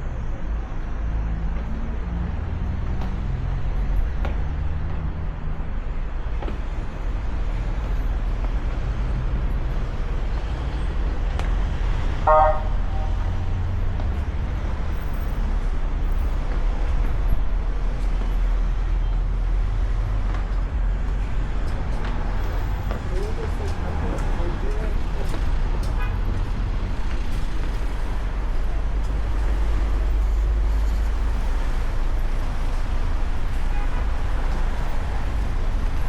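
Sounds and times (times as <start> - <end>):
vehicle engine rumbling: 0.0 - 36.0
car horn toot: 12.2 - 13.5.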